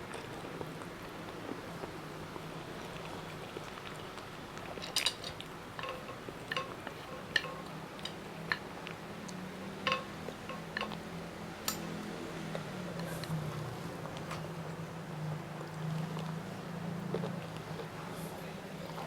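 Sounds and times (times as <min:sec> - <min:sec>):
cutlery clinking on a plate: 0:05.0 - 0:08.2, 0:09.9 - 0:11.0.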